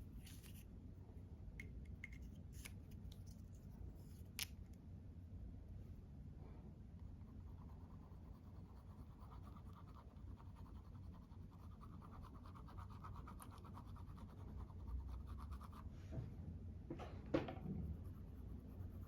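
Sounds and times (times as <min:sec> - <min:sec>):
makeup tool scratching a surface: 0:07.4 - 0:15.9.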